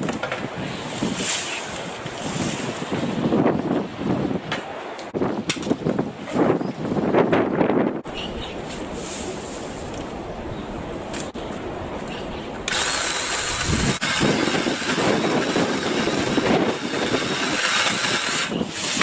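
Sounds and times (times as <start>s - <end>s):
wind noise on microphone: 0.0s - 19.0s
cordless saw running: 12.7s - 19.0s.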